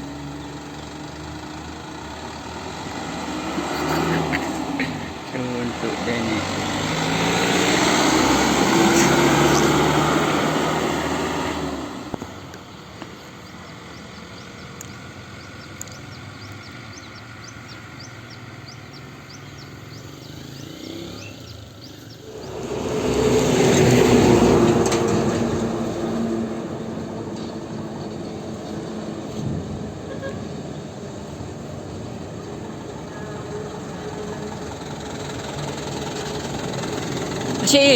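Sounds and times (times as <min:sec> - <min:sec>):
heavy vehicles passing: 0:00.0 - 0:37.9.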